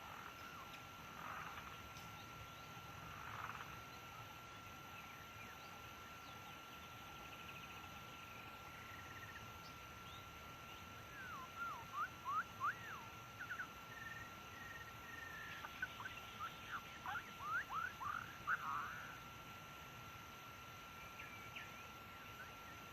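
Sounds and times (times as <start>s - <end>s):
bird singing whistled notes: 11.1s - 19.1s.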